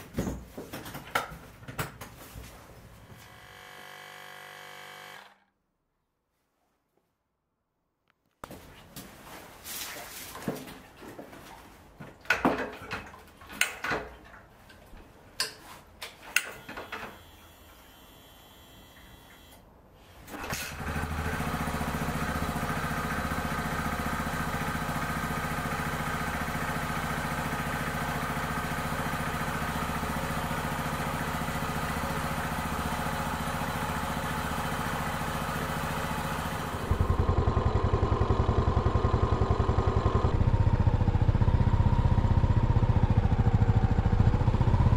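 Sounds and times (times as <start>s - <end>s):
motorcycle engine idling: 20.9s - 44.9s.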